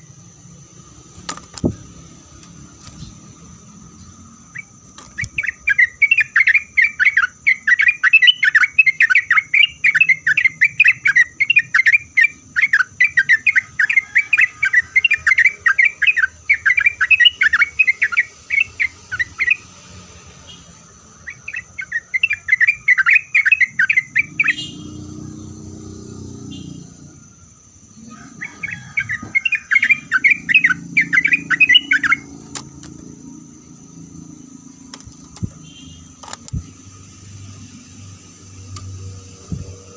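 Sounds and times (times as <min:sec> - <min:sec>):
bird song bubbling chattering: 0:04.5 - 0:14.0, 0:28.6 - 0:32.3.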